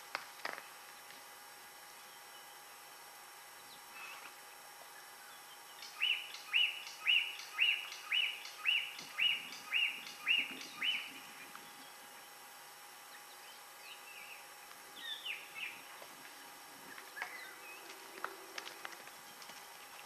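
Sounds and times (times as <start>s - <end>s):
bird calling upswept notes: 5.7s - 12.3s.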